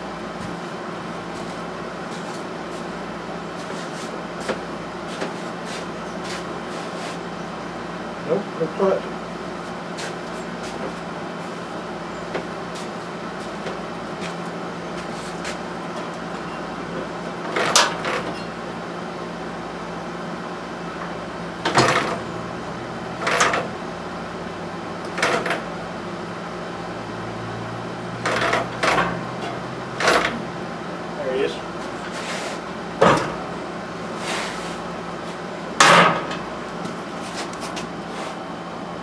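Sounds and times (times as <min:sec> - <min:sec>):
tools and metal parts knocking: 0:28.2 - 0:30.4.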